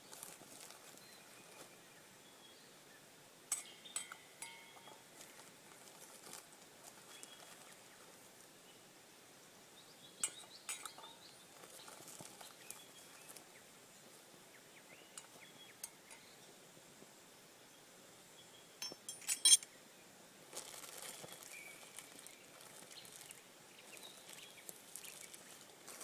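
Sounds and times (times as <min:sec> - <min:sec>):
cookware and spoon clinking: 0:03.5 - 0:05.1, 0:10.2 - 0:11.2, 0:18.8 - 0:19.6.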